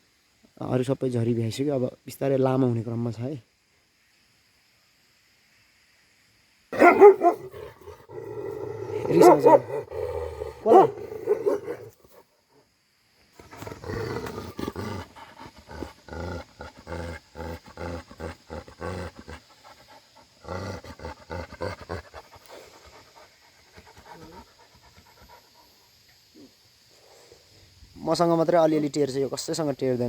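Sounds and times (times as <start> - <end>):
dog growling: 6.8 - 12.2, 13.4 - 25.4.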